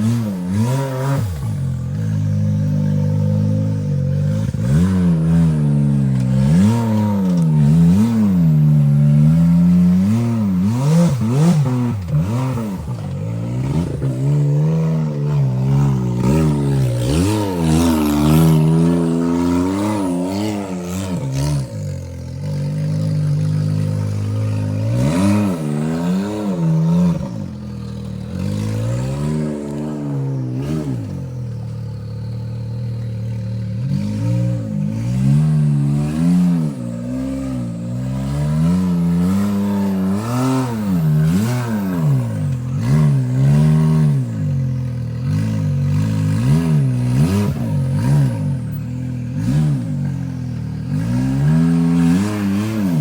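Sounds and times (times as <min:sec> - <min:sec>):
utv engine revving: 0:00.0 - 0:53.0.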